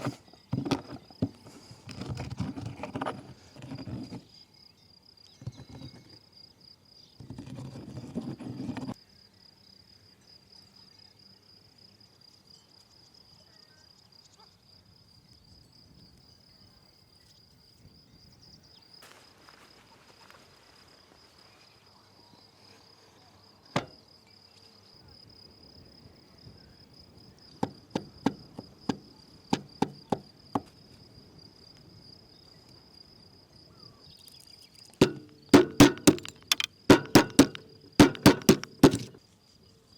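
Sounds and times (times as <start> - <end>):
insects droning: 0.0 - 39.9
sharp knocks: 23.8 - 24.0, 35.0 - 39.2.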